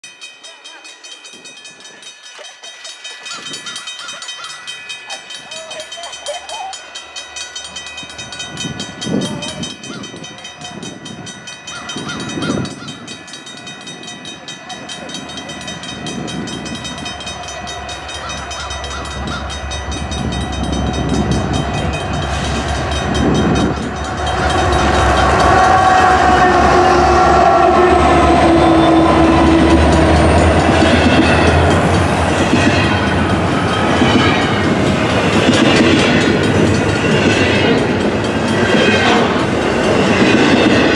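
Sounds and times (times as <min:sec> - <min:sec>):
rail noise: 0:00.0 - 0:40.9
diesel train engine rumble: 0:03.7 - 0:40.9
train air horn: 0:24.2 - 0:33.2.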